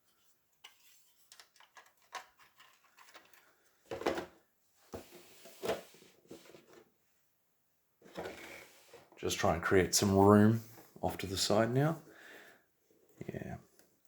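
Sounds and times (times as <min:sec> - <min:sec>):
plastic parts clattering: 0:00.6 - 0:04.4
plastic parts clicking: 0:01.3 - 0:03.4.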